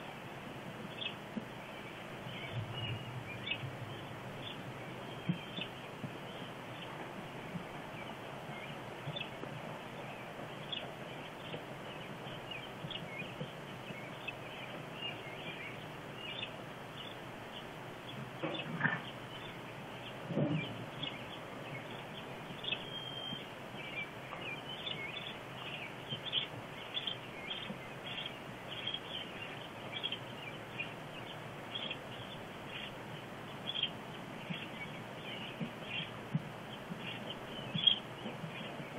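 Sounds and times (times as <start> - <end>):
small birds chirping: 0.0 - 38.9
steady outdoor hiss: 0.0 - 38.9
dull low thump: 2.4 - 4.6.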